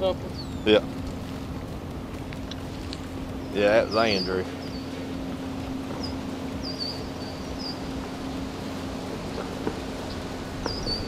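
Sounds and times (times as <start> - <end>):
bird chirping: 0.0 - 0.9, 3.3 - 8.3, 9.2 - 11.0
steady low hum: 0.0 - 11.0
wind over open water: 0.0 - 11.0.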